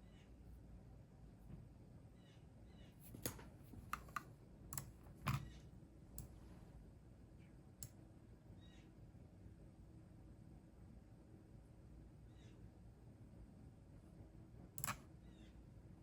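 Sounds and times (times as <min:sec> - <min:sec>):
computer keyboard key clicks: 0:14.8 - 0:15.0.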